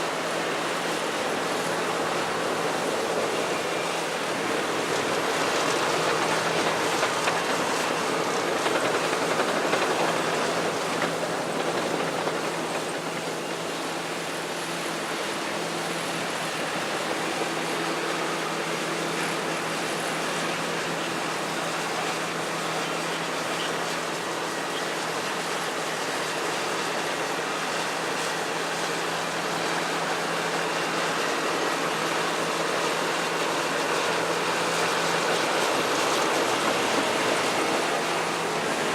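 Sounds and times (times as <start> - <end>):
bulldozer diesel engine running: 0.0 - 38.9
steady rushing noise: 30.4 - 38.9.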